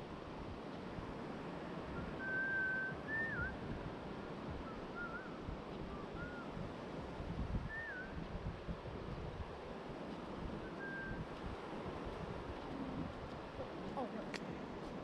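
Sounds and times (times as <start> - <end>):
wind on microphone: 0.0 - 15.0
thin whistled calls: 1.9 - 3.6, 4.6 - 6.5, 7.6 - 8.2, 10.6 - 11.3.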